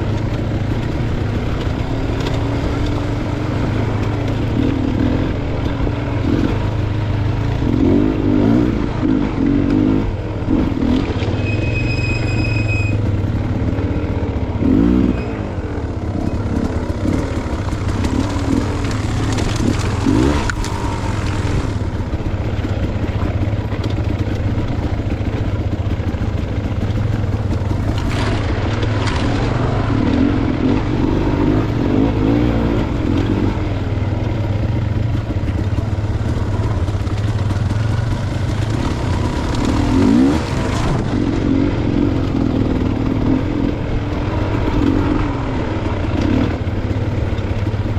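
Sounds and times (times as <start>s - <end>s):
dirt bike engine revving: 0.0s - 47.9s
bike clattering over rough ground: 15.9s - 31.0s.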